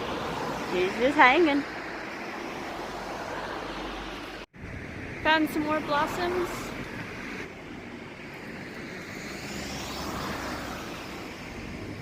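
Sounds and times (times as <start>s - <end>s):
vehicle passing by: 8.8s - 12.0s.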